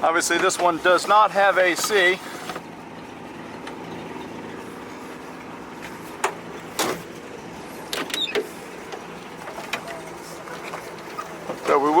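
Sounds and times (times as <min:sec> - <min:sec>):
door and window hardware clunks: 0:07.9 - 0:08.6.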